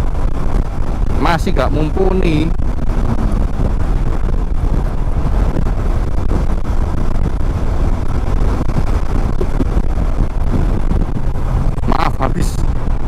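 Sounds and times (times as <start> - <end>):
road noise: 0.0 - 13.0
wind noise on microphone: 0.0 - 13.0
motorcycle engine: 2.6 - 11.9.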